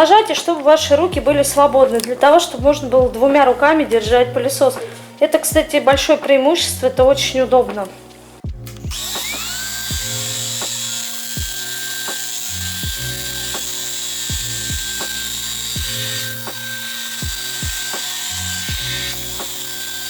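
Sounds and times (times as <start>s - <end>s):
background music with steady beat: 0.0s - 20.0s
vacuum cleaner whining: 8.8s - 20.0s.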